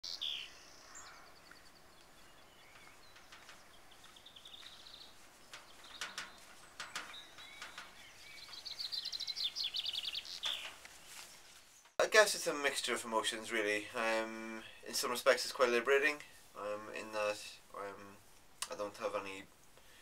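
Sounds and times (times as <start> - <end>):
songbirds singing trills: 0.0 - 12.0
faint outdoor hiss: 0.0 - 20.0.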